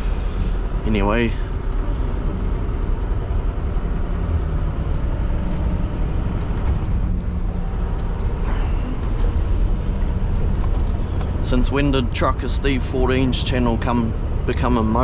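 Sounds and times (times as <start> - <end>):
diesel truck engine drone: 0.0 - 15.0
road noise: 0.0 - 15.0.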